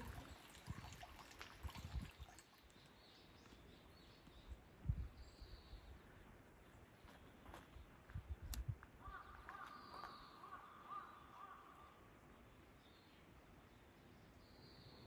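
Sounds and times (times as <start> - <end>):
faint bird calls: 8.9 - 12.5.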